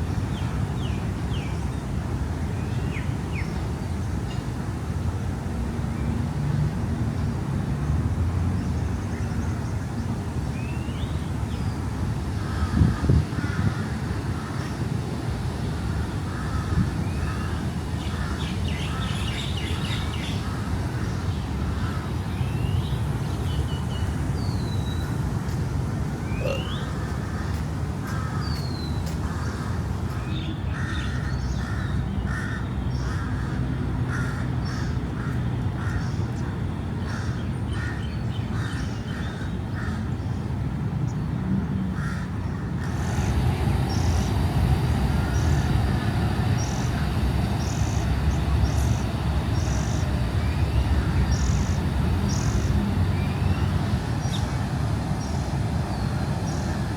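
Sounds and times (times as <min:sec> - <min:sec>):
low rumble of city traffic: 0:00.0 - 0:56.9
crows cawing: 0:12.4 - 0:14.6.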